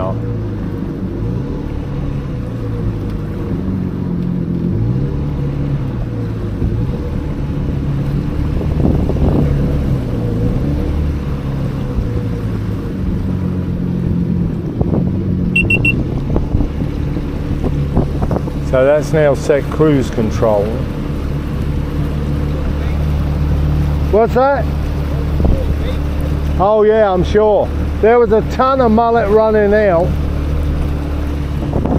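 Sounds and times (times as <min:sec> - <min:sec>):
jet ski engine running: 0:00.0 - 0:31.9
short electronic beeps: 0:15.6 - 0:16.0.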